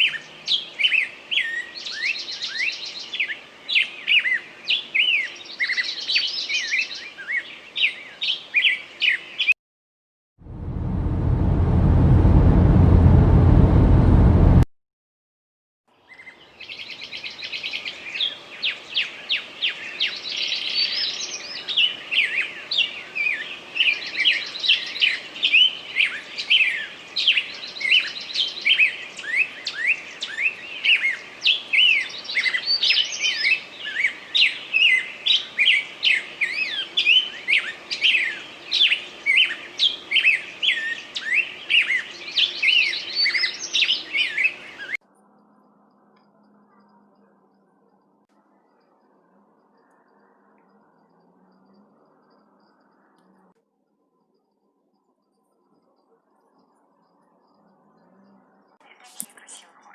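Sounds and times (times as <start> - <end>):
loud rushing noise: 10.4 - 14.7
small birds chirping: 16.0 - 53.5, 54.1 - 59.9.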